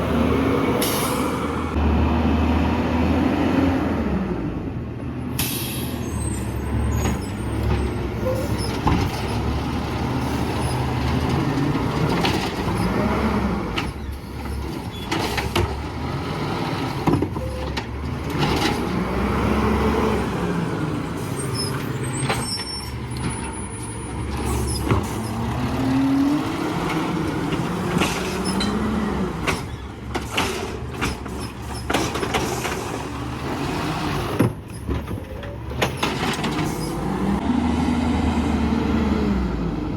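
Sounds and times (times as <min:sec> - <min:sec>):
knocks and clanks: 0:24.2 - 0:33.1.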